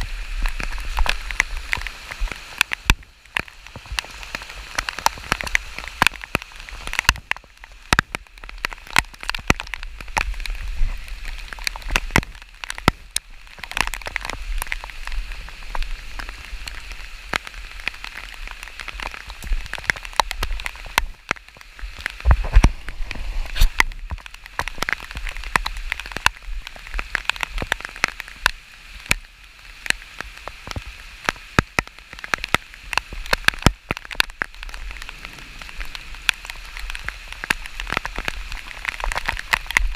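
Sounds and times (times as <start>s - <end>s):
wind rumble on microphone: 0.0s - 29.2s
rain falling: 0.0s - 39.9s
raindrops striking near microphone: 0.0s - 39.9s.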